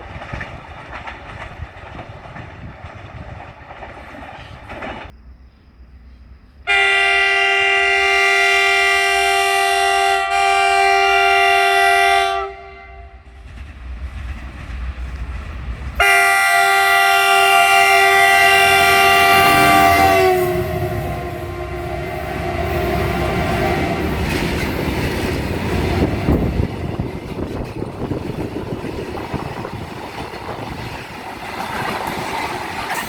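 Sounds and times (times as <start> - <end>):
train rumbling by: 0.0 - 33.0
locomotive air horn blasts: 6.7 - 13.2, 16.0 - 24.4.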